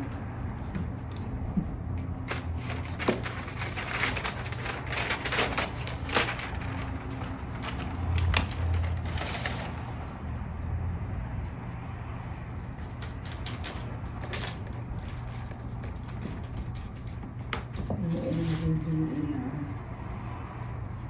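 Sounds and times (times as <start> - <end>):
low steady hum: 0.0 - 7.1
paper crinkling: 2.2 - 10.2, 12.5 - 19.5.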